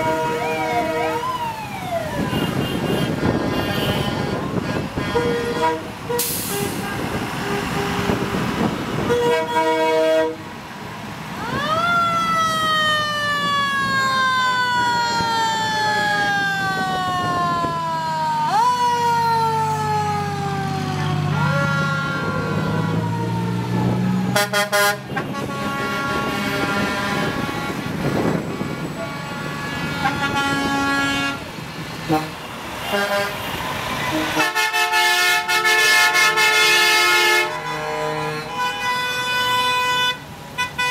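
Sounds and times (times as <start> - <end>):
truck air horns blasting: 0.0 - 1.4, 2.2 - 10.6, 20.9 - 40.9
siren rising and falling: 0.3 - 2.6, 11.4 - 24.4.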